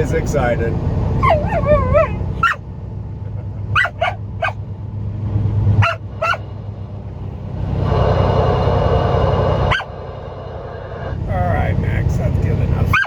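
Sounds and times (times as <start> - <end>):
truck engine hum: 0.0 - 13.0
dog yipping and whining: 1.2 - 2.6, 3.8 - 4.6, 5.8 - 6.4
loud rushing noise: 5.3 - 12.8.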